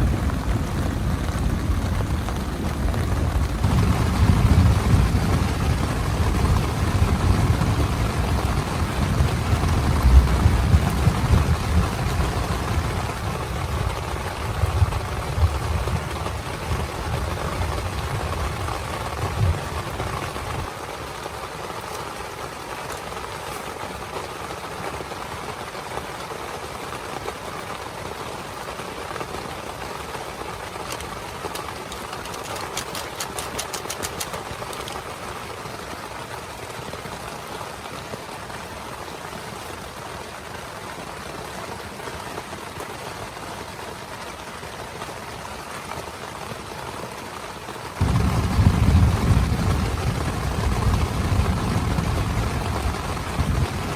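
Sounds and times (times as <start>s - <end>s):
heavy rain on a tent: 0.0s - 53.9s
rapid clicks: 30.8s - 35.1s.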